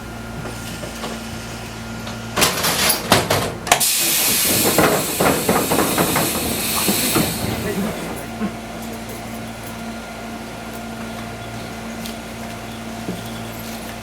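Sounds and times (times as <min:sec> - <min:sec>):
train car humming: 0:00.0 - 0:14.0
train doors opening with air burst: 0:00.4 - 0:10.0
compressed air hissing: 0:03.8 - 0:08.7.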